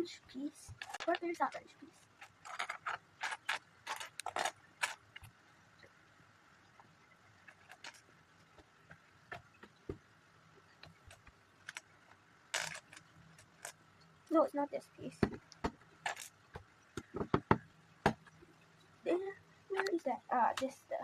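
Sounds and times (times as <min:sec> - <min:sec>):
plastic pieces clicking and rattling: 0:00.7 - 0:05.3, 0:07.4 - 0:08.1, 0:10.8 - 0:13.8, 0:15.2 - 0:16.4.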